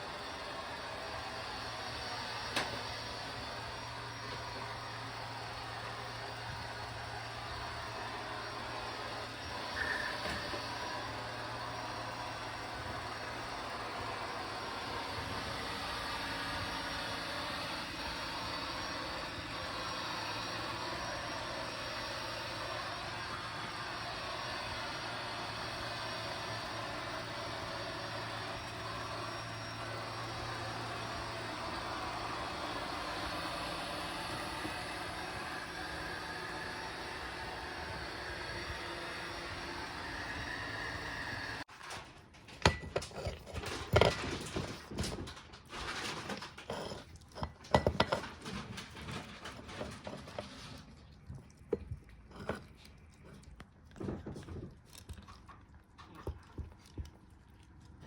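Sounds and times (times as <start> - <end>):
robot vacuum cleaner whirring: 0.0 - 41.7.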